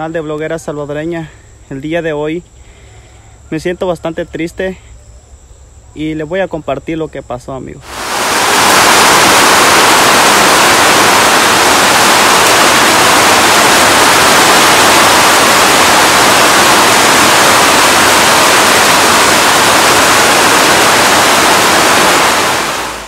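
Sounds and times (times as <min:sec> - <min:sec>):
heavy rain pouring: 0:07.8 - 0:23.0.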